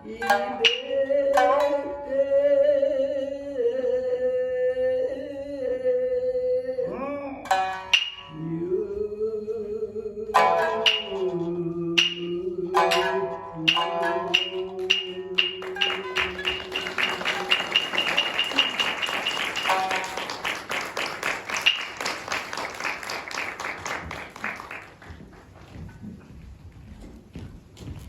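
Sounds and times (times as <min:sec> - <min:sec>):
shamisen plucking: 0:00.0 - 0:02.9, 0:07.4 - 0:08.8, 0:10.3 - 0:22.5
person singing long note: 0:08.3 - 0:19.1.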